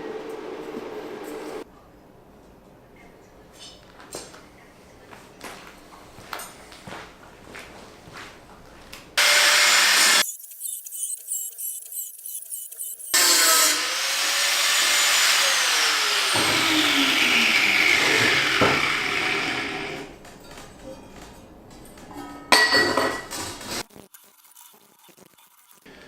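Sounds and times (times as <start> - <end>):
power tool working on steel: 9.2 - 20.1.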